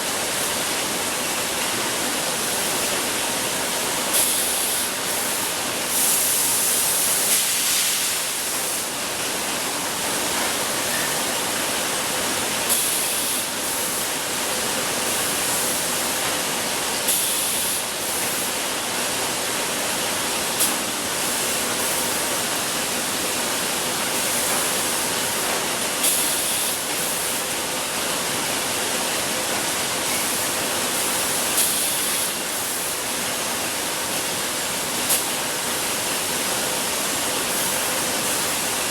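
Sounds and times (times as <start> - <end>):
production line machinery hissing: 4.1 - 9.0, 12.7 - 14.1, 17.0 - 18.6, 20.4 - 28.3, 30.0 - 38.9.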